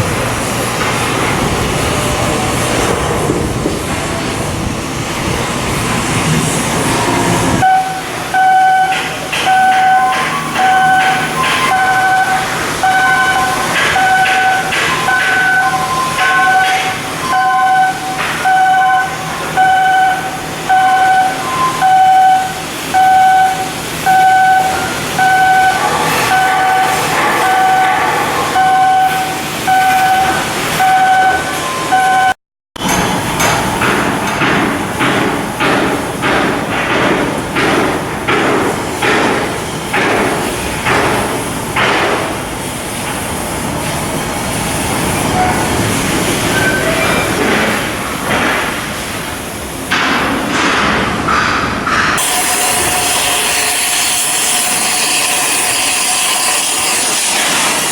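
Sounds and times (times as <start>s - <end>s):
steady mechanical noise: 0.0s - 57.9s
short tones: 7.6s - 32.4s
electronic beeps: 7.7s - 27.9s.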